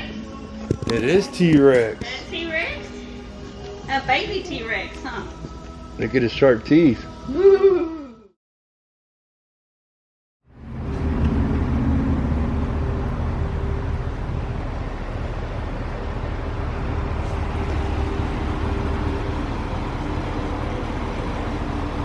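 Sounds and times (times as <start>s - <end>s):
car road and engine noise: 10.5s - 22.0s.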